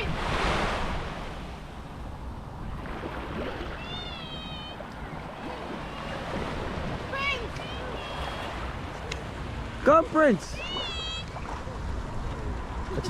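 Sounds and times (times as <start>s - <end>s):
wind on microphone: 0.0s - 9.7s
sea surf: 0.0s - 13.0s
high-pitched wavering call: 3.7s - 6.2s.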